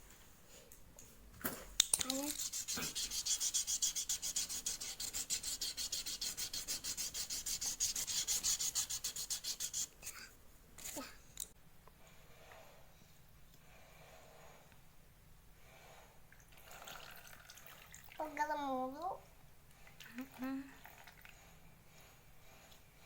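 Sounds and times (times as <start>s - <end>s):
rapid rhythmic rubbing: 2.1s - 10.1s.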